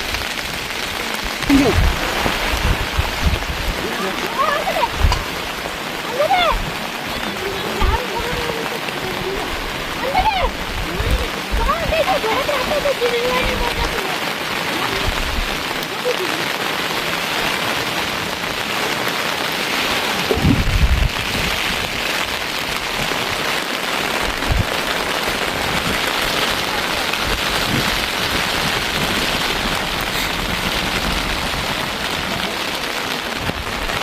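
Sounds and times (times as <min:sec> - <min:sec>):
rain falling: 0:00.0 - 0:34.0.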